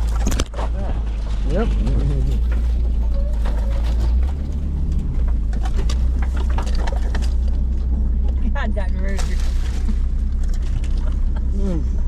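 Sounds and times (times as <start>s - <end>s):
rattles and clicks: 0.0s - 11.5s
car road and engine rumble: 0.0s - 12.0s.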